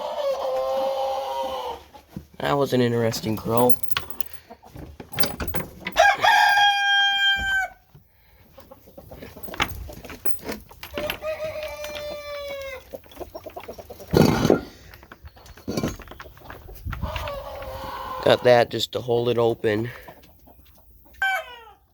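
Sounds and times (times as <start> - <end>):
young cockerel crowing: 5.9 - 7.8, 11.0 - 12.8, 21.2 - 21.9.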